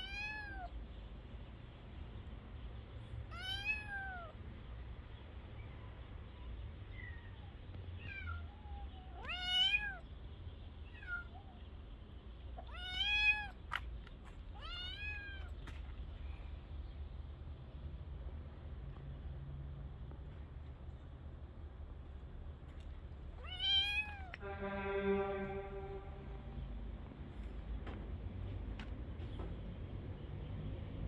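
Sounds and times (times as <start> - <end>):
kitten meowing: 0.0 - 0.7, 3.3 - 4.4, 8.0 - 10.0, 12.6 - 13.6, 14.6 - 15.5, 23.4 - 24.4.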